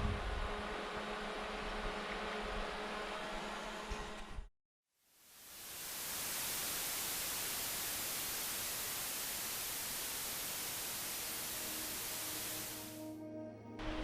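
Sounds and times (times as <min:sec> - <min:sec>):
white noise static hiss: 0:05.1 - 0:13.0.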